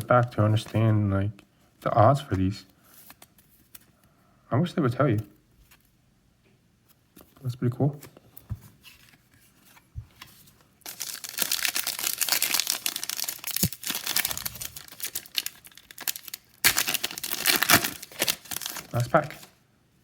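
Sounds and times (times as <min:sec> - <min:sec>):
plastic wrapper crackling and rustling: 0:10.8 - 0:19.6.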